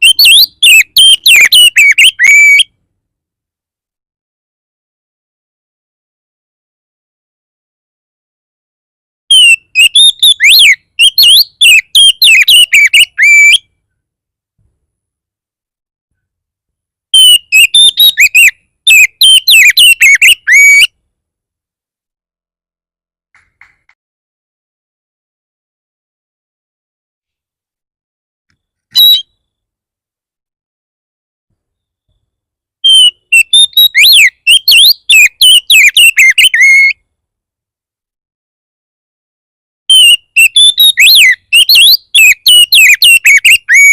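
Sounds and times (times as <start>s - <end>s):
bird singing whistled notes: 0.0s - 2.6s, 9.3s - 13.7s, 17.2s - 20.9s, 29.0s - 29.5s, 31.7s - 36.9s, 39.9s - 43.9s.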